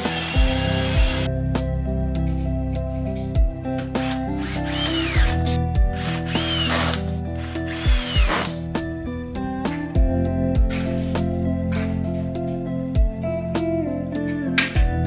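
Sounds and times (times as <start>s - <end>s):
power drill whining: 0.0s - 1.3s, 3.8s - 8.7s
background music: 0.0s - 15.0s
heavy low thumps: 3.4s - 3.8s, 5.2s - 6.0s, 7.8s - 10.8s, 12.9s - 13.2s.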